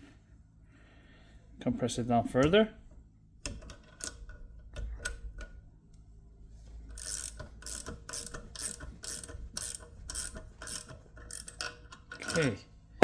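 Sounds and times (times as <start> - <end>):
ratchet wrench clicking: 6.9 - 12.5.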